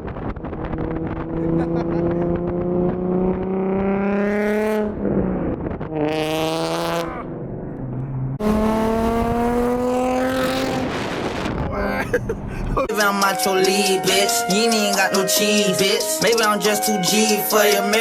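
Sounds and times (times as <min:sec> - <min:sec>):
car engine accelerating: 0:00.0 - 0:11.7.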